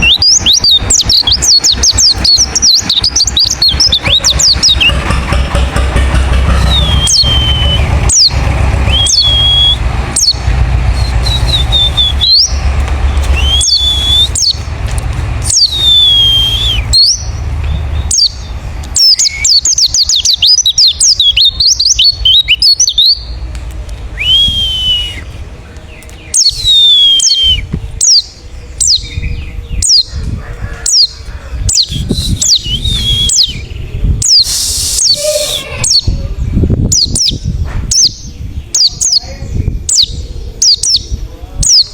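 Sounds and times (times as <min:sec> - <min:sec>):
bird calling: 0:00.0 - 0:14.8, 0:15.4 - 0:17.4, 0:24.1 - 0:36.2
low hum: 0:00.0 - 0:19.4.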